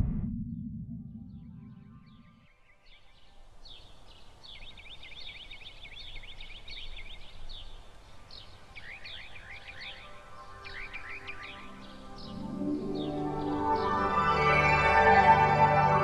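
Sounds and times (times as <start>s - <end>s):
birds chirping: 1.3s - 13.9s
low steady background hiss: 2.9s - 12.0s.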